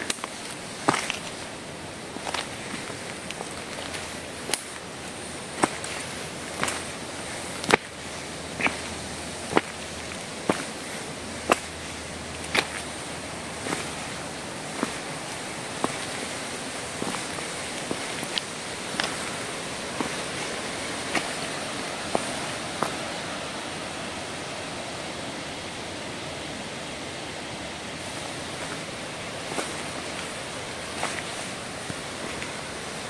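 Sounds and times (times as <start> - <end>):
footsteps snapping twigs: 0.0 - 1.4, 2.2 - 4.9, 5.6 - 10.8, 12.4 - 13.0, 17.0 - 23.0
rushing background noise: 0.0 - 33.0.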